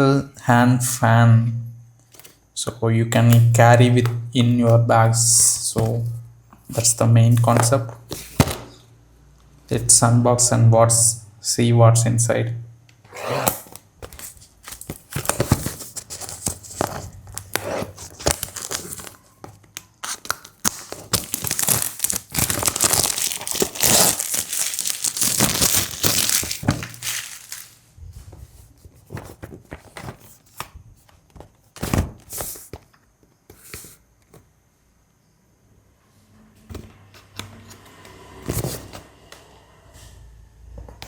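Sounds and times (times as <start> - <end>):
knocks and handling sounds: 5.8 - 8.8, 13.1 - 34.5
packaging tearing and crinkling: 13.5 - 19.2, 20.0 - 27.8.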